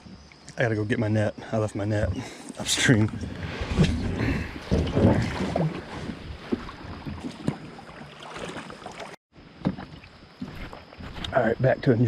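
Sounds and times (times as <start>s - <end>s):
wind noise: 2.0s - 8.5s
water sloshing: 2.1s - 11.3s.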